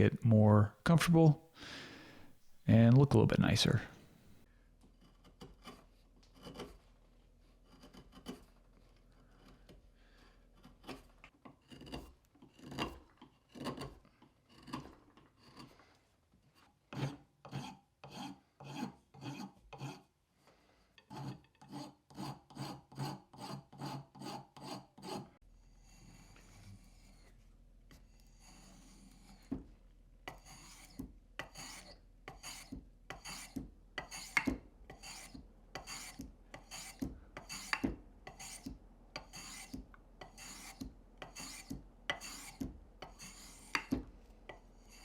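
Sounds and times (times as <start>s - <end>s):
hand rasp strokes on wood: 9.2s - 15.8s, 21.0s - 25.3s, 30.3s - 43.9s.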